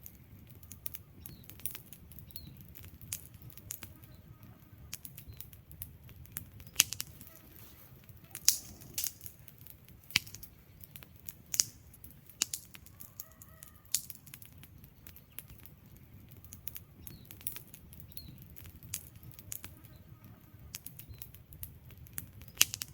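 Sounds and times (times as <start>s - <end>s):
logs crackling and popping: 0.0s - 22.9s
low rumble of flame: 0.0s - 22.9s.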